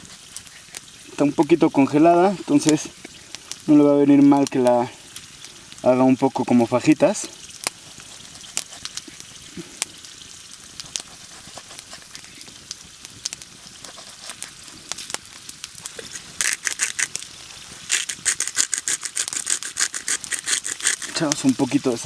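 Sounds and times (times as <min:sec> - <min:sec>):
potatoes sizzling in oil: 0:00.0 - 0:22.0
scraping clicking strokes: 0:17.9 - 0:22.0.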